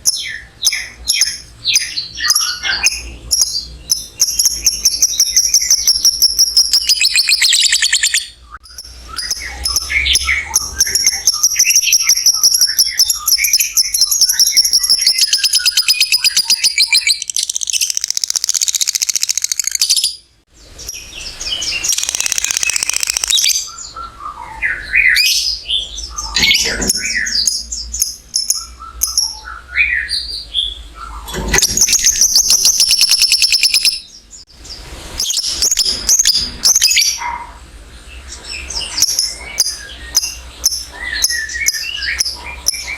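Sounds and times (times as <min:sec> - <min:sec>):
bird chirps: 0:00.0 - 0:34.4, 0:38.2 - 0:42.9
lovebird trilling: 0:08.8 - 0:20.2, 0:21.8 - 0:23.7.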